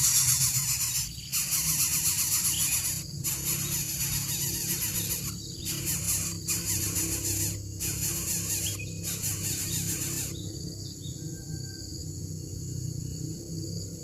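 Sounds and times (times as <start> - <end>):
coucal calling: 0.0 - 10.4.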